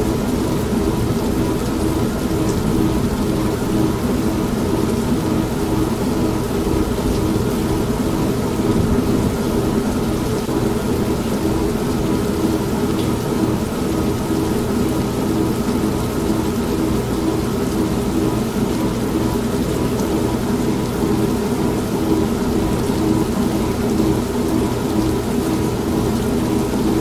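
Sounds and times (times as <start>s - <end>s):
steady rain: 0.0s - 27.0s
washing machine humming: 0.0s - 27.0s
low thunder rumble: 6.8s - 11.8s.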